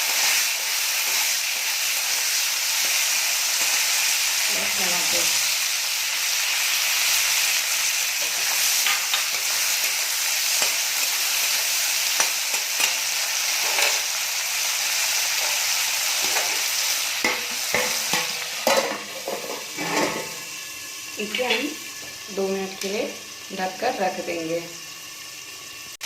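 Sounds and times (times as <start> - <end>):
vegetables sizzling in hot oil: 0.0 - 26.0
spatula scraping a pan: 8.2 - 11.3, 12.2 - 14.1, 15.3 - 20.5.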